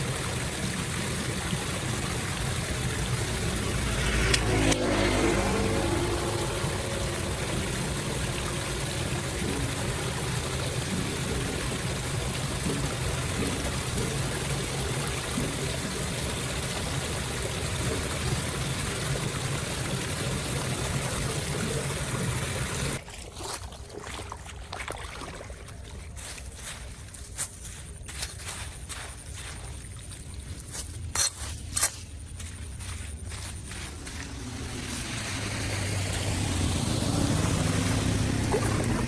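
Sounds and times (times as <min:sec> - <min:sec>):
water rushing down drain: 0:00.0 - 0:26.2, 0:34.0 - 0:39.0.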